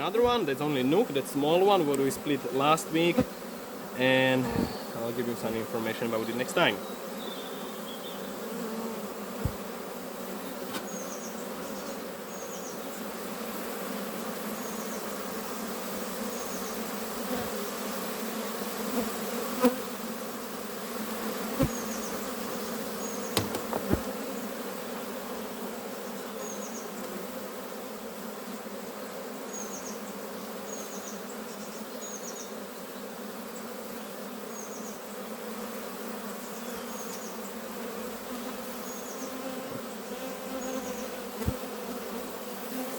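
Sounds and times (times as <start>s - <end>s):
honeybees buzzing: 0.0s - 42.9s
sharp knocks: 23.4s - 24.1s.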